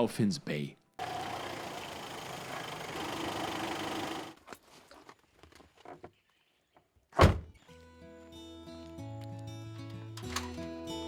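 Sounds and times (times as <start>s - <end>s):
vehicle noise: 1.0s - 4.4s
loud thump: 7.2s - 7.5s
soft background music: 7.6s - 11.0s.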